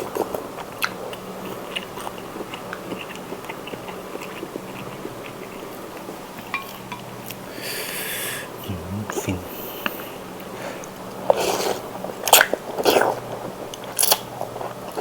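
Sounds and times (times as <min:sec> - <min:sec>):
noodles chewing: 0:00.0 - 0:08.0
faint steady hum: 0:00.0 - 0:15.0.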